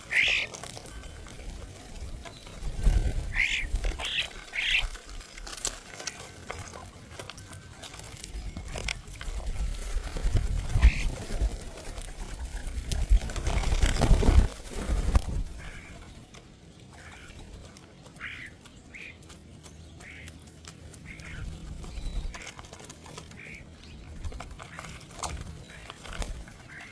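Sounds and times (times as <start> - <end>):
close-up rustling and crunching: 0.0 - 26.9
bird giving short calls: 0.1 - 0.5, 3.3 - 4.9.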